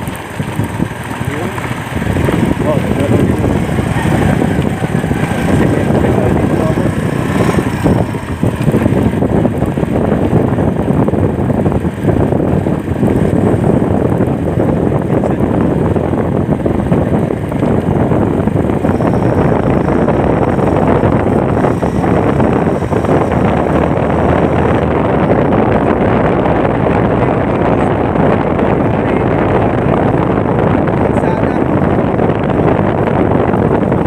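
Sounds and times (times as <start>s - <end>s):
moving vehicle rumble: 0.0s - 34.0s
wind buffeting microphone: 0.0s - 34.0s.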